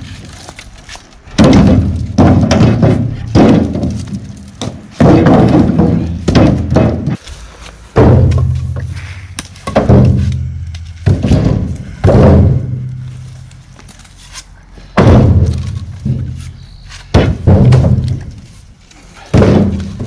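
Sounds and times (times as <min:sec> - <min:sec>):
maul striking wood thunks: 0:01.3 - 0:07.2, 0:08.0 - 0:13.1, 0:15.0 - 0:18.5, 0:19.3 - 0:20.0.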